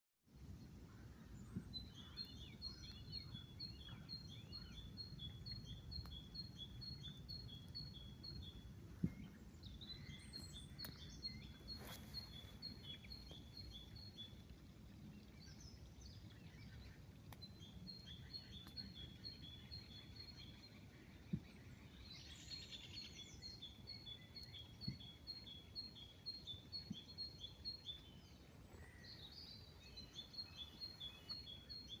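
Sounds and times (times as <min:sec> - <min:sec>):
faint low rumble: 0:00.3 - 0:23.4
songbird singing: 0:00.3 - 0:32.0.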